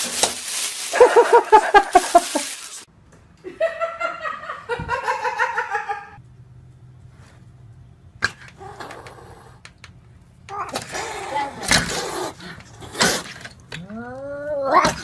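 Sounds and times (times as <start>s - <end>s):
person laughing: 0.9s - 2.6s.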